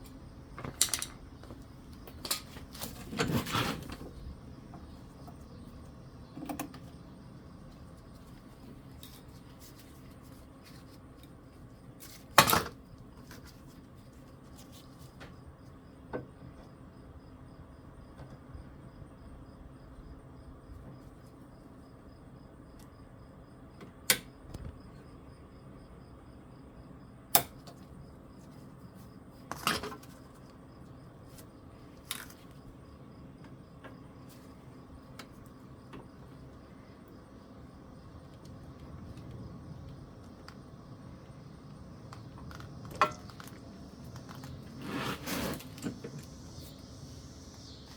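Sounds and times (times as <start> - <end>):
tools handled on workbench: 0.0 - 4.1.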